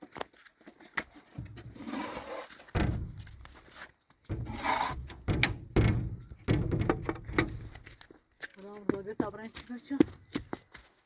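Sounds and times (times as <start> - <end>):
dull thumps: 2.7 - 3.6, 4.3 - 7.9.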